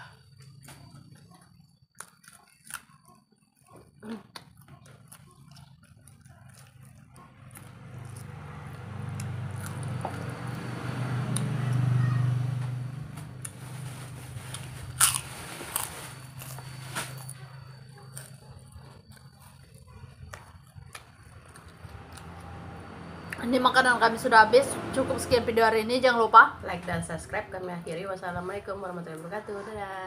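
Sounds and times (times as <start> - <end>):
chewing crunchy chicken: 0.4 - 12.0, 13.4 - 22.5.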